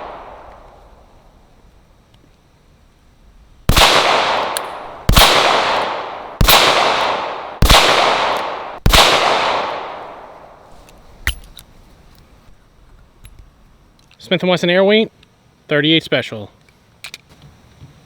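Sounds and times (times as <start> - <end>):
revolver gunshots echoing: 3.7 - 10.6.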